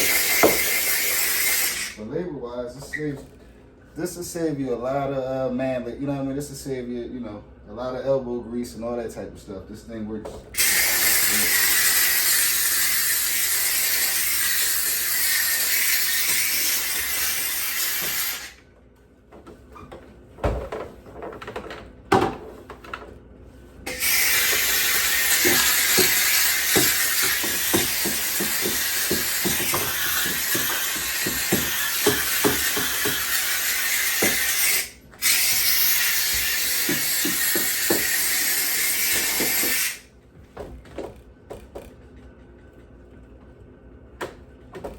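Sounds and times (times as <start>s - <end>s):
steam cleaner hissing: 0.0s - 2.0s, 10.6s - 18.6s, 23.9s - 40.0s.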